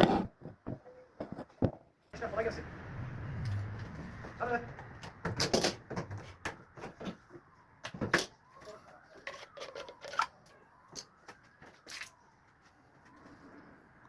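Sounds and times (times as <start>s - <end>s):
clicks and knocks of parts and tools: 4.7s - 12.2s.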